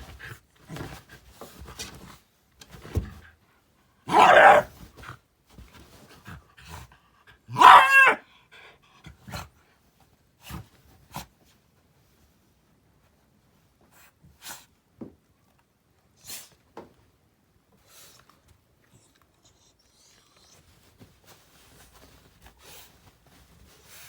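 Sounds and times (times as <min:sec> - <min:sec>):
dog barking harshly: 0:04.1 - 0:04.7, 0:07.5 - 0:08.2
dog grumbling and huffing: 0:04.1 - 0:04.7
dog yowling: 0:04.1 - 0:04.7, 0:07.5 - 0:08.2.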